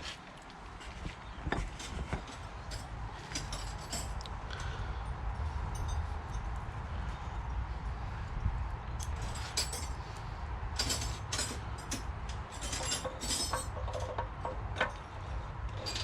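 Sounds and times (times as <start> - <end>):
metal tools clinking: 1.8 - 4.3, 9.0 - 10.0, 10.8 - 15.1, 15.7 - 16.0.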